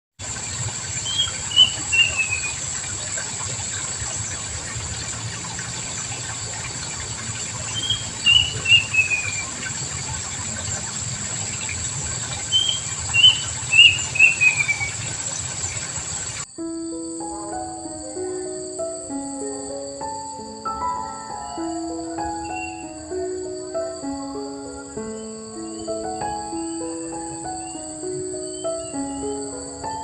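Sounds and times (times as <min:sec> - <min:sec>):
steady high hiss: 0:00.2 - 0:30.0
bird singing: 0:01.0 - 0:02.7, 0:07.6 - 0:09.7, 0:12.4 - 0:15.8, 0:16.5 - 0:30.0.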